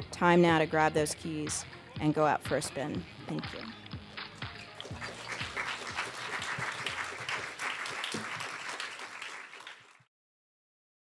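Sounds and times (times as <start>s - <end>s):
audience applauding: 4.2s - 10.1s.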